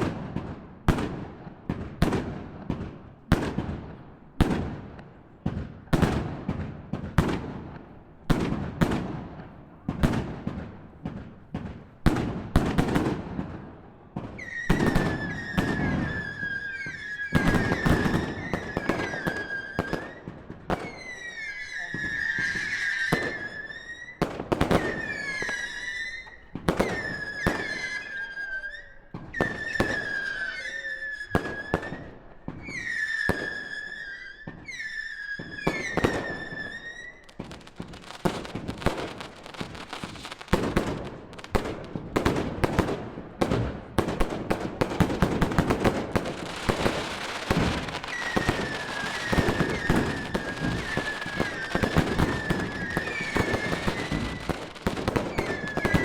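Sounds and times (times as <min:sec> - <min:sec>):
firework bangs: 0:00.0 - 0:28.4, 0:29.1 - 0:56.0
firework whistling: 0:14.3 - 0:42.8, 0:45.0 - 0:56.0.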